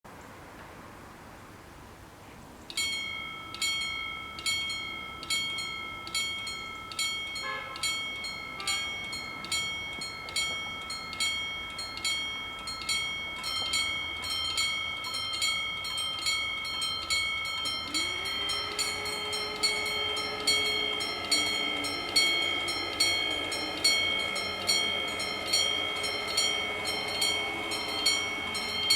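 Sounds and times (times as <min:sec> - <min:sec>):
level crossing warning bells: 0:02.7 - 0:28.9
rising steady tone: 0:12.6 - 0:28.9.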